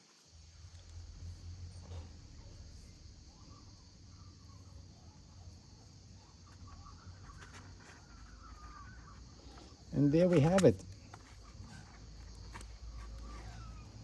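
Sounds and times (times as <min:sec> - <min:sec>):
high insect drone: 0:00.0 - 0:14.0
faint bird calls: 0:02.9 - 0:14.0.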